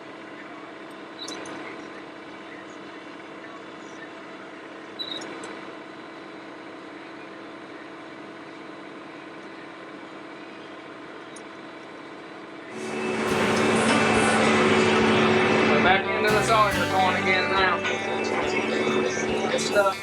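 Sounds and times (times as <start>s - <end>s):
combine harvester drone: 0.1s - 20.0s
loud full sound: 12.7s - 20.0s.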